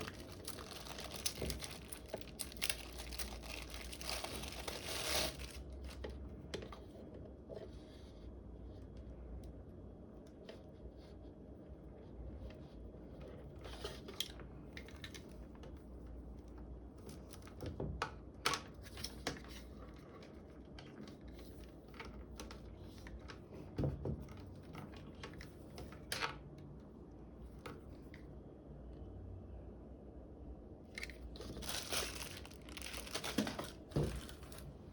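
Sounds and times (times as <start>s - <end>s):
packaging rustling and clicking: 0.0s - 6.2s, 31.0s - 34.9s.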